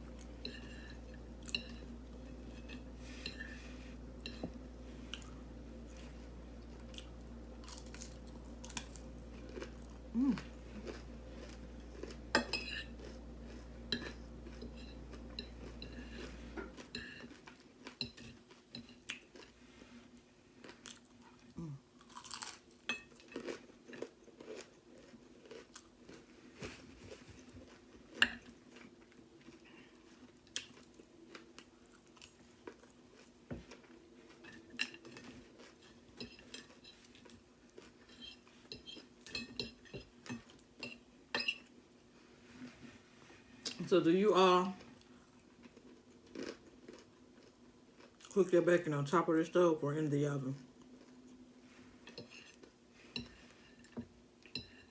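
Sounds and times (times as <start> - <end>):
low hum: 0.0 - 16.9
person chewing crunchy food: 0.0 - 41.0, 44.8 - 48.4.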